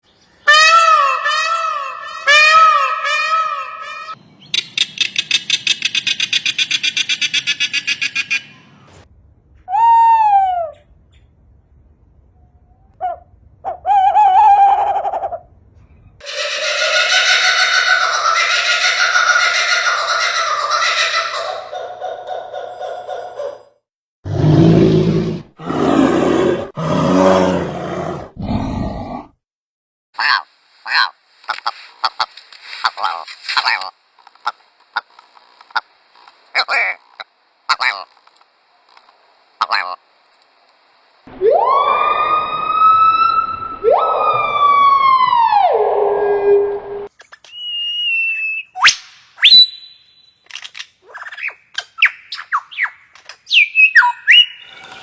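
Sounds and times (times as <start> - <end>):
bird calls rising and falling: 0.4 - 9.0, 16.2 - 22.8, 41.3 - 55.0
long falling bird call: 0.4 - 9.0, 16.2 - 21.8, 52.0 - 55.0
higher animal call: 0.5 - 4.2
bird pulsed rattle: 4.6 - 8.5
large animal roaring: 24.3 - 29.4.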